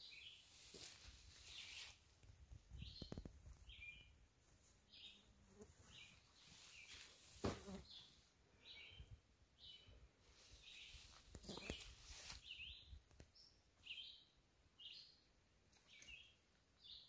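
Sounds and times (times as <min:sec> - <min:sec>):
bird chirping: 0:02.7 - 0:04.2, 0:07.8 - 0:17.0.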